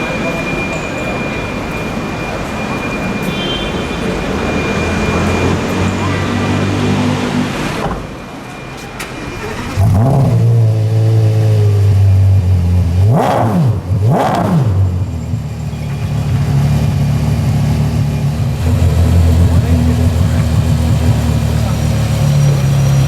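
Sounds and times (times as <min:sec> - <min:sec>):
sports car engine revving: 0:09.4 - 0:23.0.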